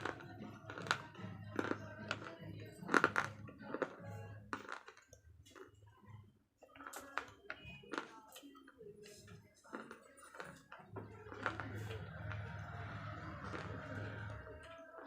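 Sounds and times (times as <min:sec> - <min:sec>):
brittle crunching between teeth: 0:00.0 - 0:05.8, 0:09.6 - 0:14.4
chewing: 0:00.0 - 0:06.0, 0:06.7 - 0:08.6, 0:09.2 - 0:15.0.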